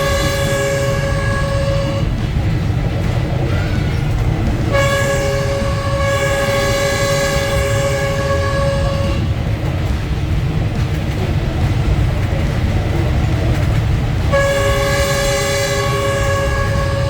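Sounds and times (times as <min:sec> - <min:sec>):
locomotive horn: 0:00.0 - 0:02.4, 0:03.4 - 0:09.5, 0:14.3 - 0:17.0
train running rumble: 0:00.0 - 0:17.0.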